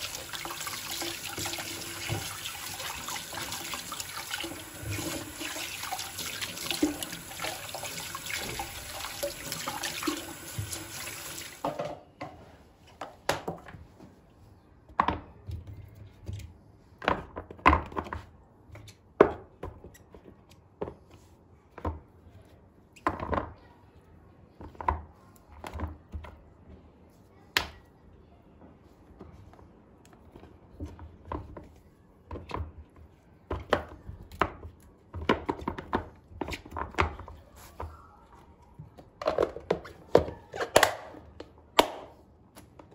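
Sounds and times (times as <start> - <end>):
tap water running into sink: 0.0 - 11.7.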